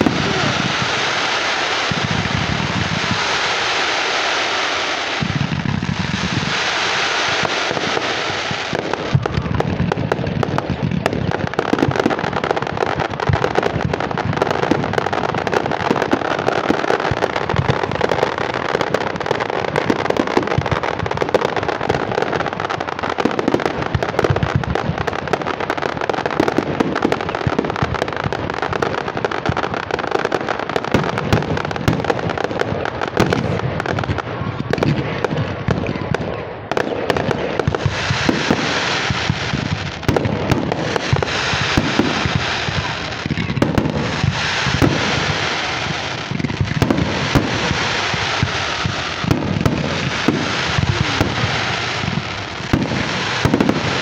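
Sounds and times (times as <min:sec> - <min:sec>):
hissing rush: 0:00.0 - 0:09.6, 0:37.8 - 0:54.0
fireworks crackling and popping: 0:00.0 - 0:54.0.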